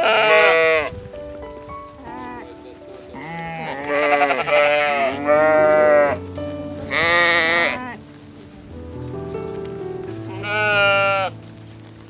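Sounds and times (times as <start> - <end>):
sheep bleating: 0.0 - 1.0, 2.0 - 6.3, 6.9 - 8.0, 10.2 - 11.4
background music: 0.0 - 12.0.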